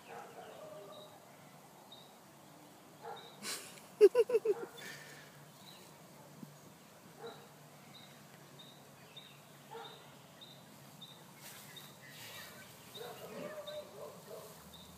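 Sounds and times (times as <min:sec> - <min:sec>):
rustling hiss: 0:10.6 - 0:14.9.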